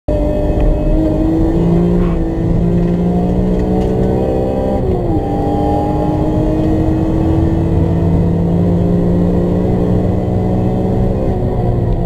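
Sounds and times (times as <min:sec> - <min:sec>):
car engine accelerating: 0:00.1 - 0:12.0.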